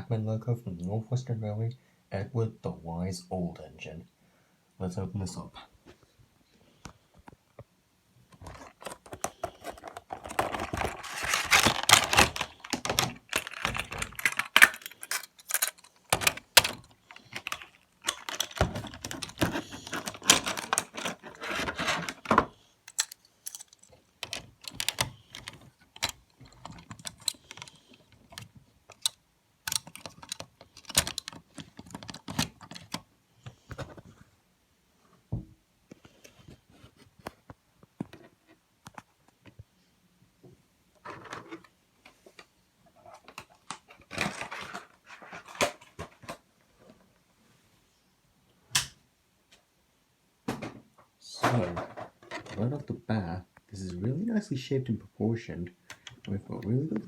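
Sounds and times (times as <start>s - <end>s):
packaging rustling and crinkling: 8.3s - 33.0s, 43.1s - 46.4s.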